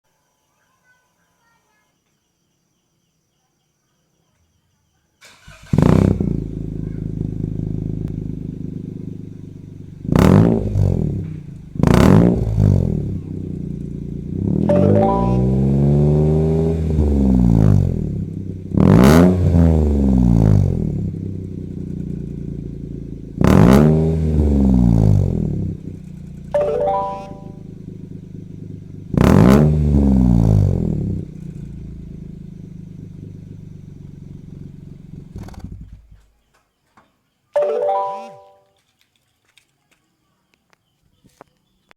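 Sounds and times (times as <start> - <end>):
car engine idling and revving: 5.4 - 14.7, 15.5 - 26.6, 27.4 - 36.2.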